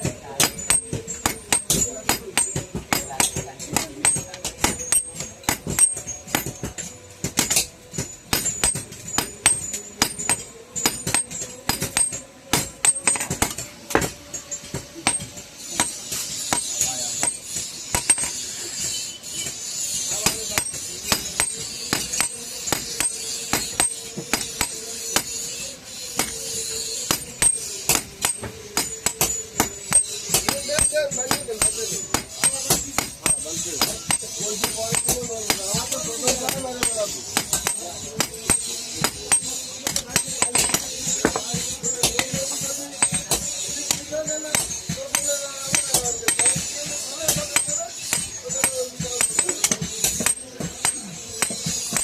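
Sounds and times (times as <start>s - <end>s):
hammer striking iron on anvil: 0.0s - 52.0s.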